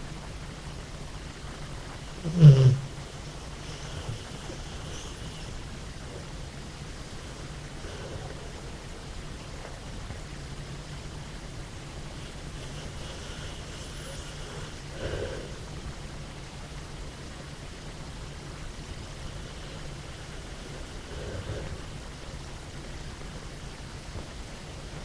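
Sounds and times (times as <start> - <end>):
low hum of breathing: 0.0 - 25.0
dog snoring: 1.4 - 10.2, 12.0 - 16.2, 18.6 - 22.8.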